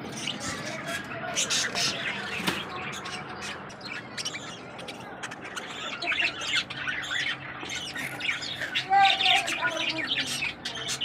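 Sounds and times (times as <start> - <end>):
lovebirds chirping and squawking: 0.0 - 11.0.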